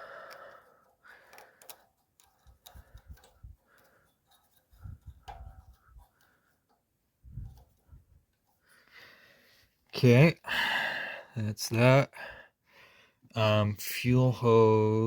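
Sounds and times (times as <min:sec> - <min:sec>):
light clicks and taps: 0:00.2 - 0:08.6.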